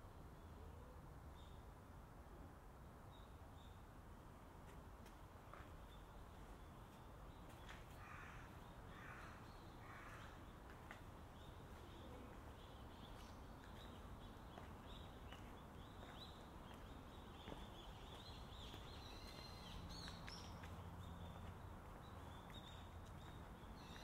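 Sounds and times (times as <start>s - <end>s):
small birds chirping: 5.5s - 24.0s.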